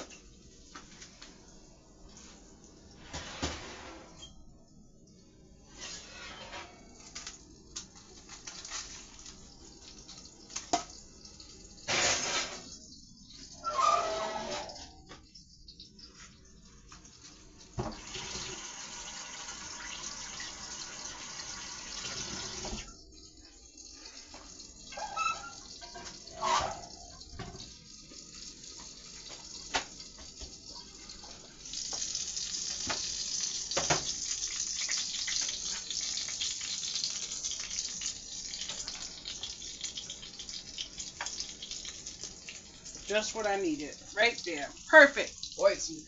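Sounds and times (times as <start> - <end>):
tap running into a sink: 17.8 - 18.6, 32.8 - 34.2.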